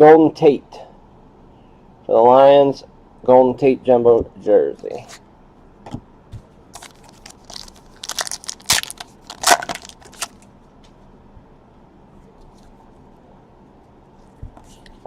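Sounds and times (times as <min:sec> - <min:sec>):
trading card packaging crinkling: 0:06.8 - 0:10.5.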